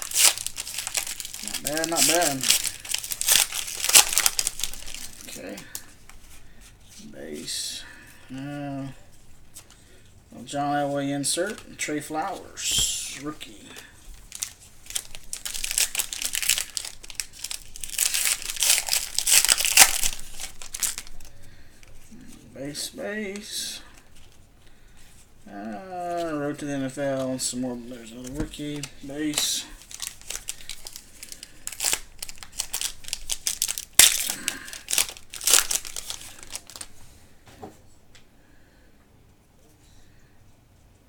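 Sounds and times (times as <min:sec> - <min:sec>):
foil wrapper crinkling: 0:00.0 - 0:06.2, 0:12.6 - 0:22.1, 0:26.1 - 0:36.9.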